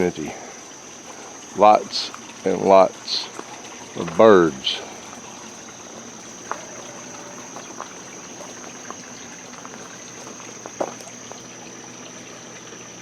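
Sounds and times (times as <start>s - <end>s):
faint hiss: 0.0s - 11.6s
crickets droning: 0.0s - 13.0s.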